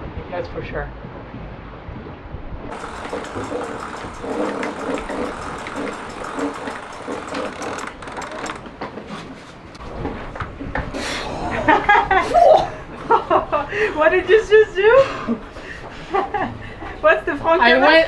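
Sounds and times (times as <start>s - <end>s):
winch pawls clicking: 2.7s - 9.8s
boat underway noise: 2.7s - 9.9s.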